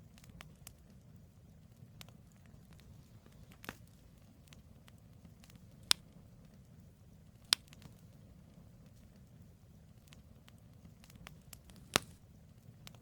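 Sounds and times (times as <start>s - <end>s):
campfire crackling: 0.0s - 13.0s
loud wood snaps: 5.4s - 6.2s, 7.4s - 8.0s, 11.0s - 12.2s.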